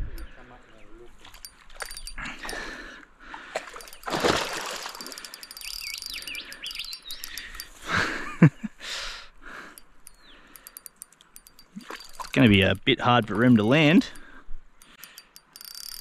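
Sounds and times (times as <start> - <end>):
birds chirping: 0.0 - 4.3, 5.0 - 8.6, 9.3 - 15.1.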